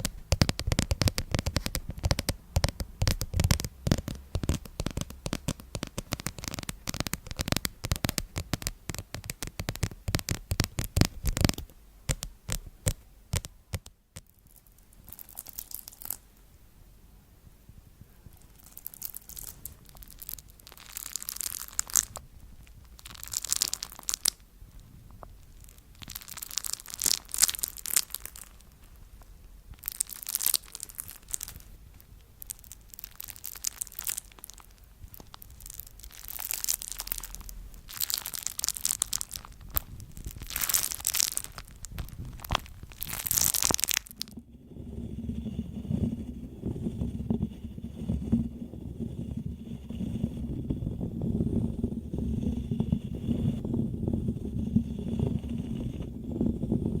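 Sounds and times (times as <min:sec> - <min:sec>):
brittle crackling being crushed: 0:00.0 - 0:16.2, 0:18.6 - 0:24.4, 0:25.4 - 0:28.8, 0:29.8 - 0:31.7, 0:32.4 - 0:44.4.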